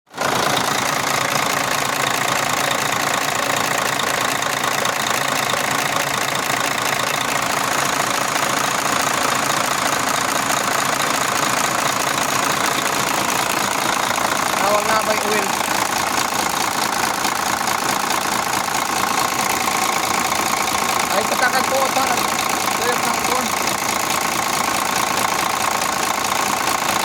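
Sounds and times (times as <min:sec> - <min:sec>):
truck diesel engine idling: 0:00.1 - 0:27.0.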